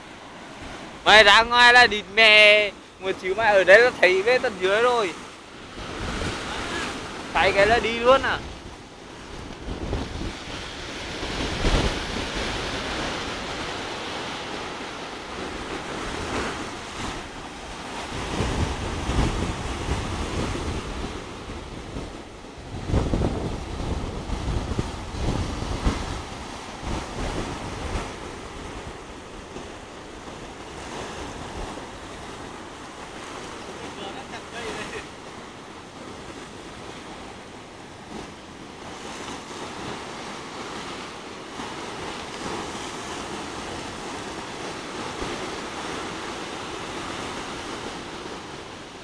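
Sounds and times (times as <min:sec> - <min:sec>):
sea surf washing in and out: 0:00.0 - 0:49.0
wind buffeting microphone: 0:05.5 - 0:33.6.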